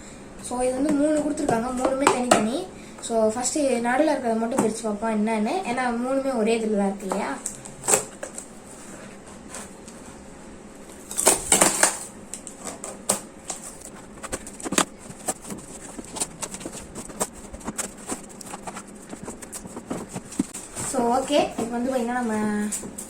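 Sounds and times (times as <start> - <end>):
plastic packaging being handled: 11.0 - 23.0.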